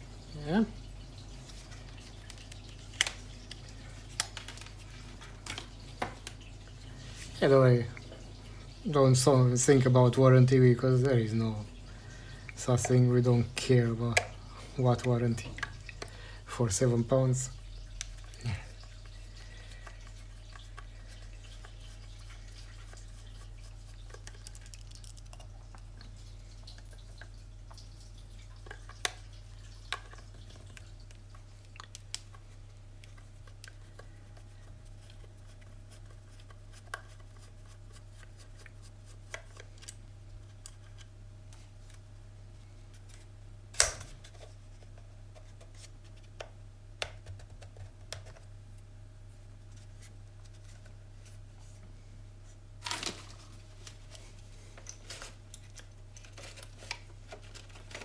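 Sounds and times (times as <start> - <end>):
low electrical hum: 0.0 - 58.0
plastic clicks and rustles: 1.6 - 6.5, 17.8 - 42.0, 52.8 - 58.0
plastic snapping: 43.7 - 44.3.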